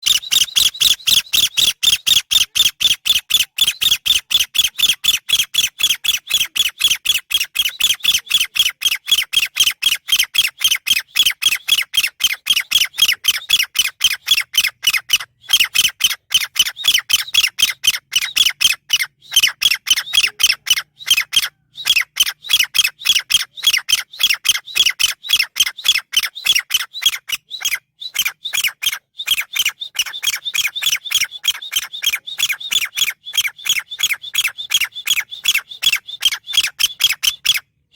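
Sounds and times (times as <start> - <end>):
francolin calling: 0.0 - 5.0, 11.4 - 37.6.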